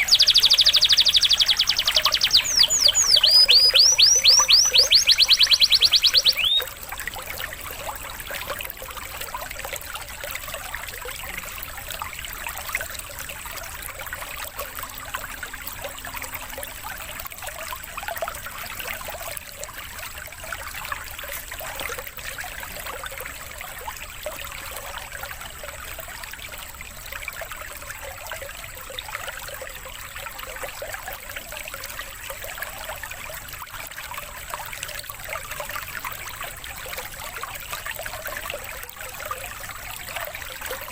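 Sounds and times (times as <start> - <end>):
babbling running water: 0.0 - 6.6.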